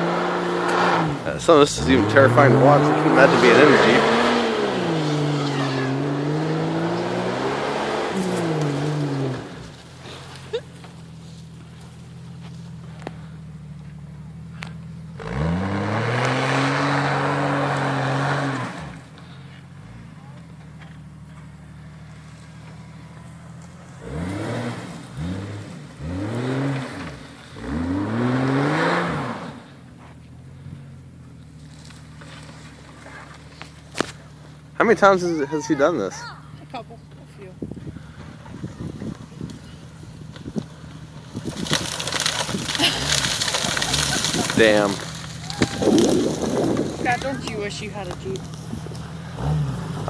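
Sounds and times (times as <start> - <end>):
engine revving under load: 0.0 - 10.6, 14.5 - 29.9, 30.5 - 50.0.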